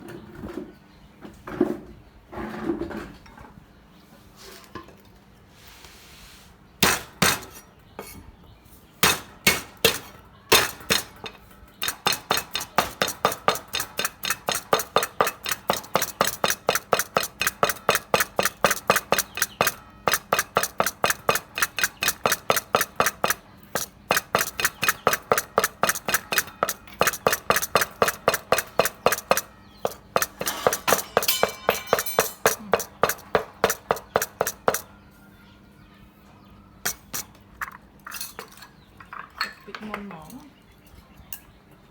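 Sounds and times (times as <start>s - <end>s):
knife chopping on cutting board: 31.9s - 34.9s.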